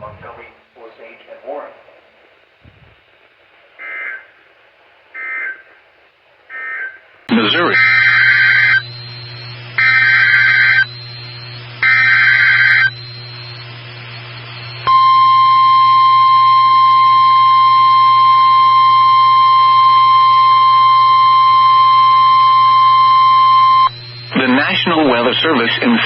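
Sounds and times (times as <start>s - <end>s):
digital header bursts: 6.7s - 13.8s, 23.5s - 26.0s.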